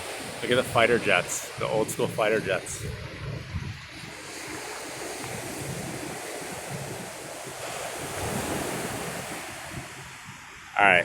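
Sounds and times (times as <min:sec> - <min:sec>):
ocean surf: 0:00.0 - 0:11.0
wind on microphone: 0:00.0 - 0:11.0.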